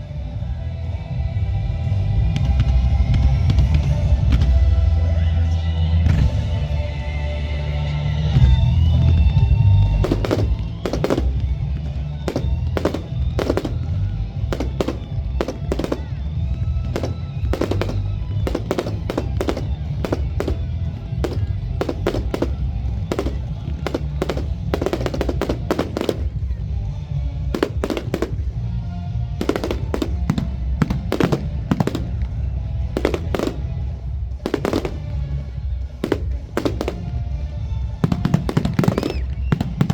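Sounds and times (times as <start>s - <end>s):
fireworks bangs: 8.4s - 39.9s.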